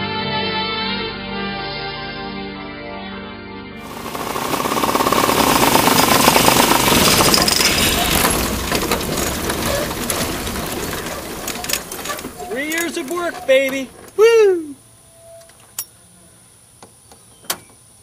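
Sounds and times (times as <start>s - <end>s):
ultralight engine and propeller rattle: 3.8s - 14.2s.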